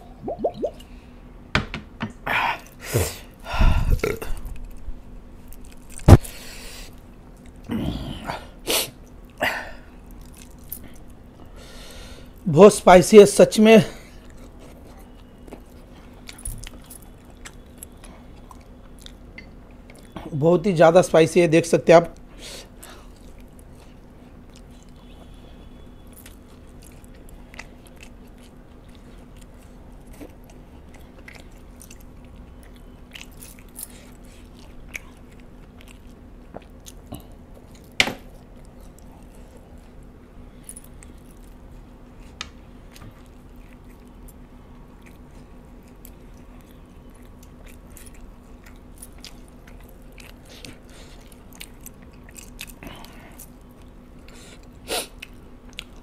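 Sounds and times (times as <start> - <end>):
mouth clicks and smacks: 0.2 - 0.9
chewing and biting: 10.0 - 11.2, 14.2 - 20.2, 22.2 - 25.4, 26.0 - 56.0.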